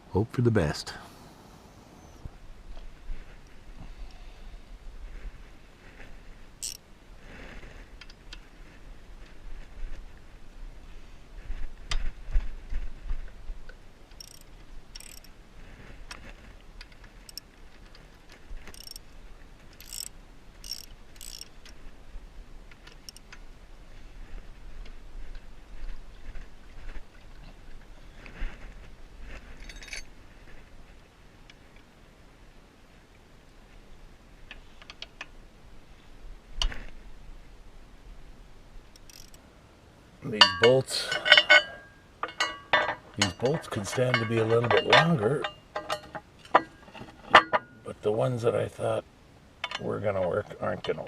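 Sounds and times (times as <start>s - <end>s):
light metal clicks: 14.1s - 15.3s
metal clinks and taps: 14.2s - 15.3s, 18.7s - 19.0s, 19.8s - 21.5s, 39.0s - 39.4s, 40.4s - 47.8s
ratchet wrench clicking: 14.2s - 15.3s, 18.7s - 19.0s, 19.8s - 21.7s, 39.0s - 39.4s.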